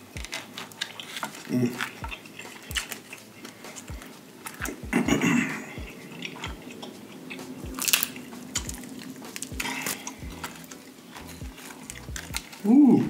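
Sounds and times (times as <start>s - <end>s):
crackles: 0.0s - 13.0s
chewing and wet mouth clicks: 0.2s - 12.7s.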